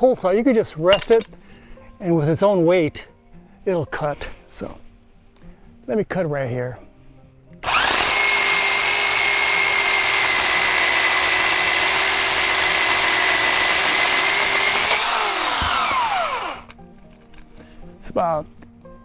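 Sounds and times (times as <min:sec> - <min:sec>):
electric pole chainsaw whine: 0:07.6 - 0:16.8.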